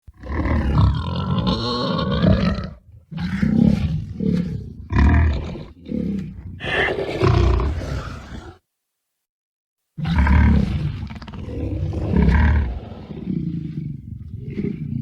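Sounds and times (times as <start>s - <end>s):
creature roars and grunts: 5.0s - 8.6s.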